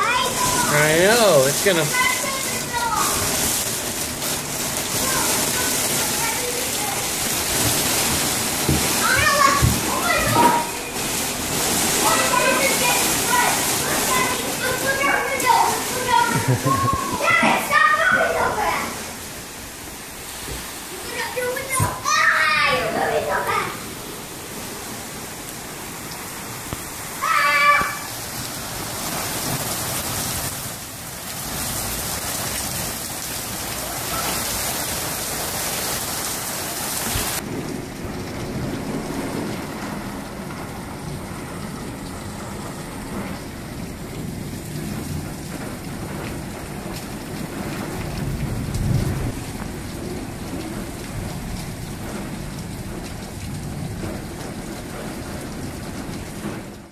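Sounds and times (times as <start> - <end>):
heavy rain pouring: 0.0 - 56.9
low thunder rumble: 37.2 - 56.8.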